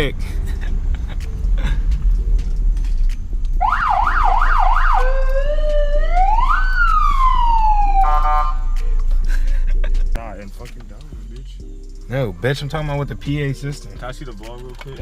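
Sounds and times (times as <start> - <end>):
police siren yelp and wail: 3.6 - 8.6.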